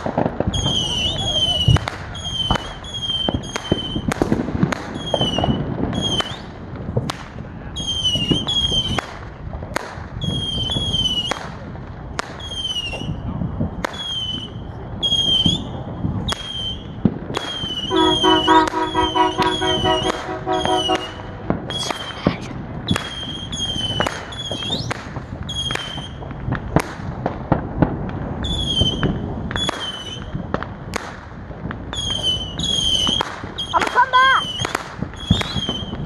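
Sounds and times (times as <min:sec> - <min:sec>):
distant fireworks popping: 0:00.0 - 0:36.0
horn chord: 0:17.9 - 0:21.2.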